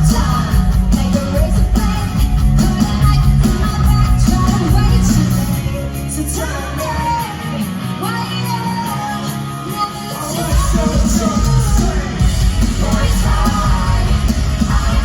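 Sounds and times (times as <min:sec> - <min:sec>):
heavy bass and drums: 0:00.0 - 0:06.8, 0:10.4 - 0:15.0
live rock music: 0:00.0 - 0:15.0.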